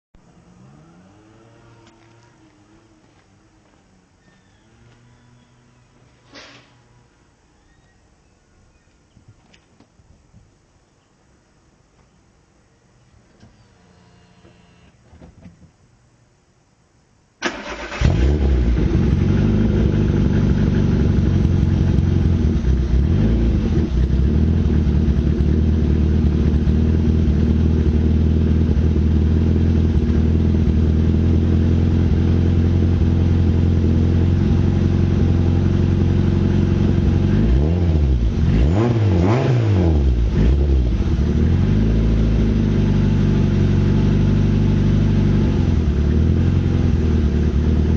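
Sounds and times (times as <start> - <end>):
car engine revving: 0.2 - 3.8, 17.4 - 47.9
car engine cranking: 17.4 - 25.6
car engine idling: 17.4 - 37.6.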